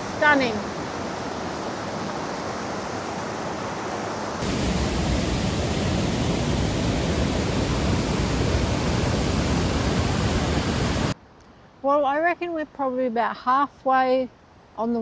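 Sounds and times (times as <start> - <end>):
river rushing over rapids: 0.0 - 11.2.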